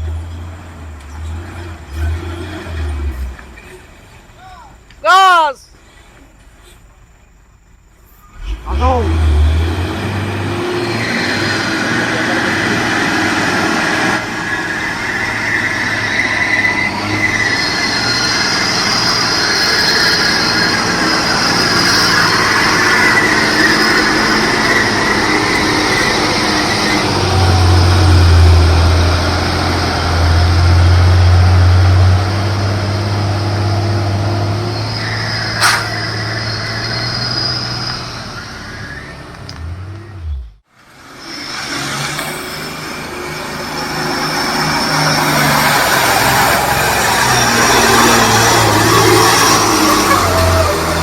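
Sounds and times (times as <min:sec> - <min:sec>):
diesel truck engine labouring: 0:00.0 - 0:04.9, 0:07.8 - 0:51.0
high-pitched squealing and whining: 0:10.7 - 0:32.2, 0:34.2 - 0:39.5, 0:41.0 - 0:51.0
sharp click: 0:35.6 - 0:36.0.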